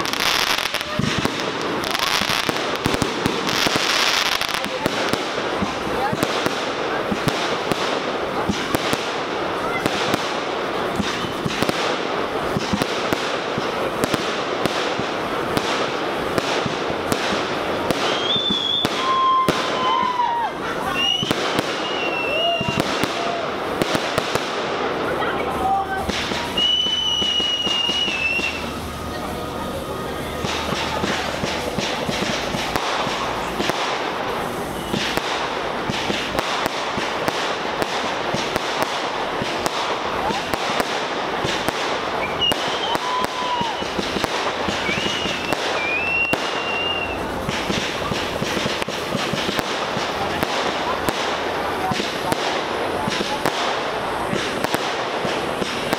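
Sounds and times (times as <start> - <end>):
fireworks crackling and banging: 0.0 - 55.9
high steady whistle: 18.0 - 20.1, 20.9 - 22.8, 26.5 - 29.1, 42.2 - 44.0, 44.8 - 47.2.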